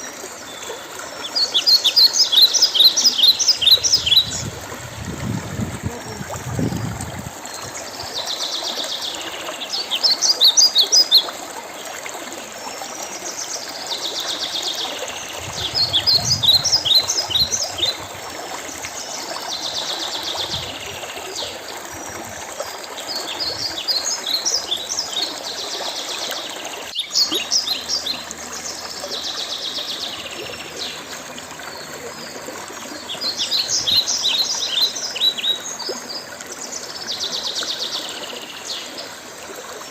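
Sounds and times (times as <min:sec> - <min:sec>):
songbird singing trills and chirps: 0:01.3 - 0:08.1, 0:15.2 - 0:18.1, 0:26.9 - 0:28.4.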